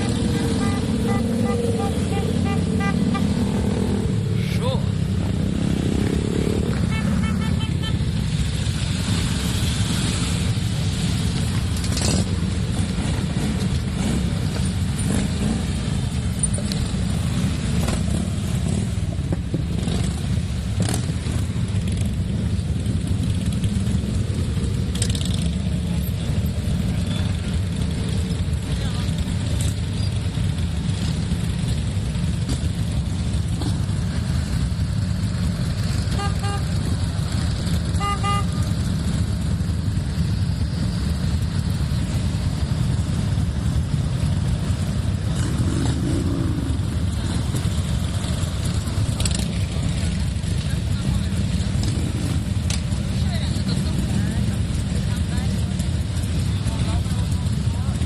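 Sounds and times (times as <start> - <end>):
motorcycle engines rumbling: 0.0 - 58.0
short horn toot: 6.8 - 8.1, 38.0 - 38.6.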